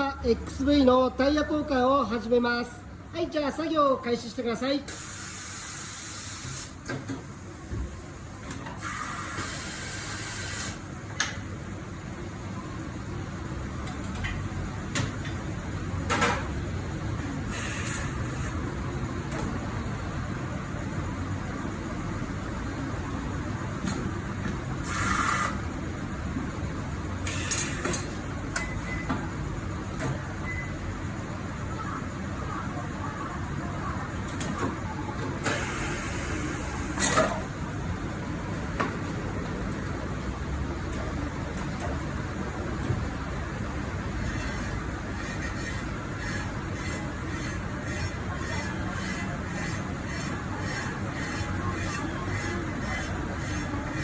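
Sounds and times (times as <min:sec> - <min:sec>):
compressed air hissing: 0:04.9 - 0:06.8
steady low hum: 0:35.9 - 0:54.0.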